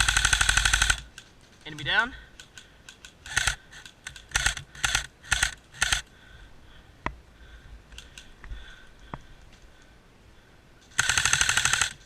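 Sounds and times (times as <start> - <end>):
airsoft rifle firing bursts: 0.0 - 1.1, 3.2 - 6.1, 11.0 - 12.0
sharp clicks: 0.0 - 6.1, 7.9 - 9.7, 10.8 - 12.0.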